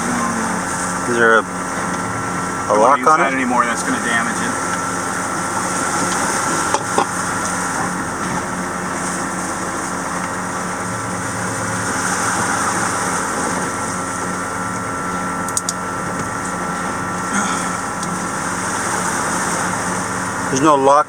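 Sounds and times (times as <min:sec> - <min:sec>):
machinery humming: 0:00.0 - 0:21.0
sharp metallic clicks: 0:15.5 - 0:15.8.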